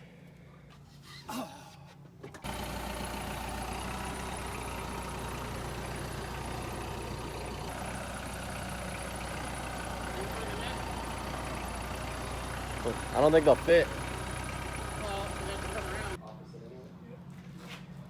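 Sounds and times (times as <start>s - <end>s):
engine running: 2.4s - 16.2s.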